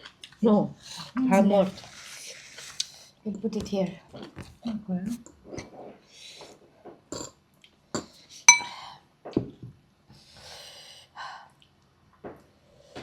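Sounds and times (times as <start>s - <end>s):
cutlery clicking on dishes: 8.5s - 8.7s
ringing clink on a bowl: 8.5s - 8.8s.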